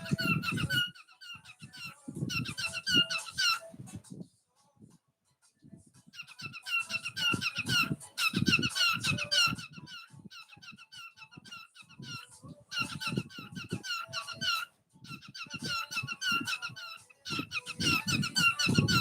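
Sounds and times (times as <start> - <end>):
cockatiel chirping: 0.0 - 3.8, 6.1 - 19.0.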